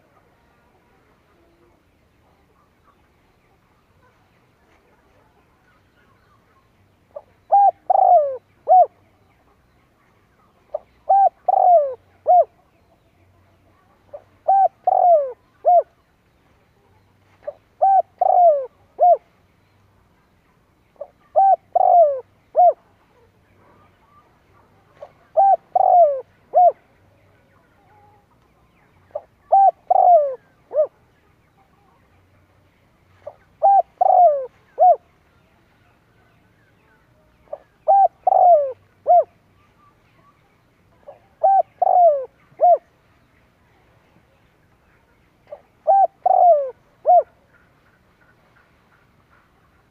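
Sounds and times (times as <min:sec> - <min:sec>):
dove cooing: 0:07.1 - 0:09.0, 0:10.7 - 0:12.6, 0:14.1 - 0:15.9, 0:17.4 - 0:19.3, 0:21.0 - 0:22.9, 0:25.0 - 0:26.9, 0:29.1 - 0:31.0, 0:33.2 - 0:35.1, 0:37.5 - 0:39.4, 0:41.1 - 0:42.9, 0:45.5 - 0:47.7.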